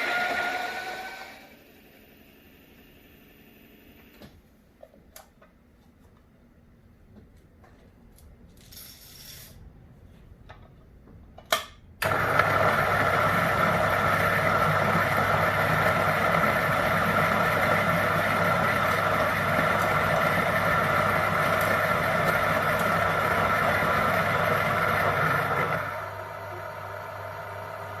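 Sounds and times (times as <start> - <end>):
coffee grinder whirring: 0.0 - 1.6, 12.0 - 28.0.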